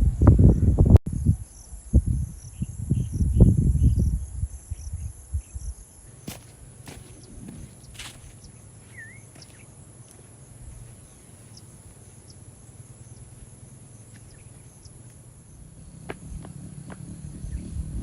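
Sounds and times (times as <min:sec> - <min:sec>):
low wind rumble: 0:00.0 - 0:18.0
crickets trilling: 0:00.5 - 0:18.0
bird chirp: 0:04.7 - 0:16.4.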